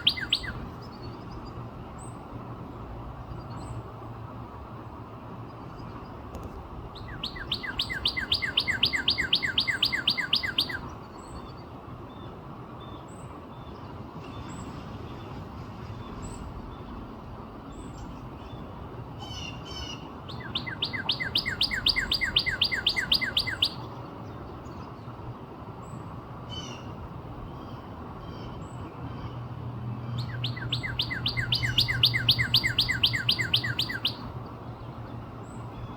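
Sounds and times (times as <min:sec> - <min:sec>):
bird singing slurred whistles: 0:00.0 - 0:00.6, 0:07.0 - 0:10.9, 0:20.3 - 0:23.9, 0:30.2 - 0:34.3.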